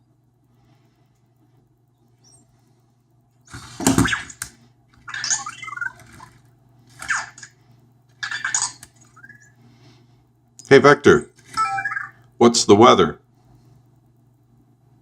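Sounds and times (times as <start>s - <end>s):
robot electronic chirps and warbles: 5.0s - 6.4s, 8.2s - 9.6s, 11.6s - 12.3s.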